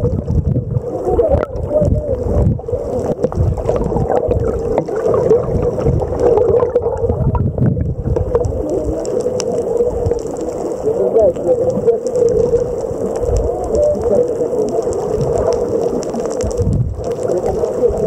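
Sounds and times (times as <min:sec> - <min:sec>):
small clicks: 0:11.4 - 0:18.0.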